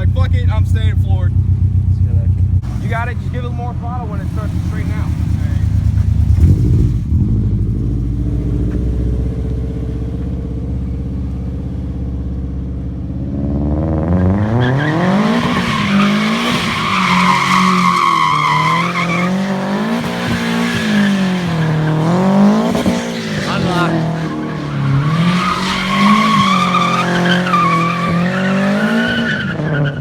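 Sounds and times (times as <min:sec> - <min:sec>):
car engine revving: 0:00.0 - 0:30.0
tyres squealing: 0:14.6 - 0:30.0.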